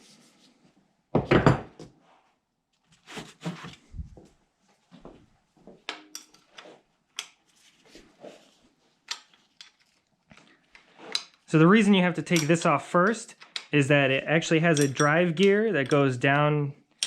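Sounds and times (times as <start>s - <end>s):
wrench clinking and scraping metal: 5.9s - 7.4s, 9.0s - 10.5s, 12.2s - 13.8s, 14.6s - 16.2s.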